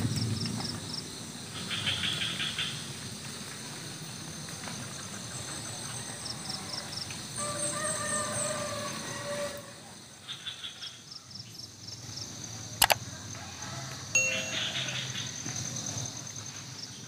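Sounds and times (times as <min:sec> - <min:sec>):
insects humming: 0:00.0 - 0:17.0
rooster crowing: 0:06.4 - 0:09.9, 0:13.0 - 0:15.4.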